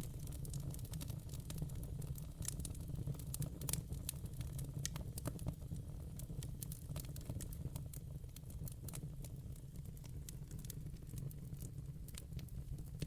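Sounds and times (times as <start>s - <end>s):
fire crackling and popping: 0.0s - 13.0s
low rumble of flames: 0.0s - 13.0s.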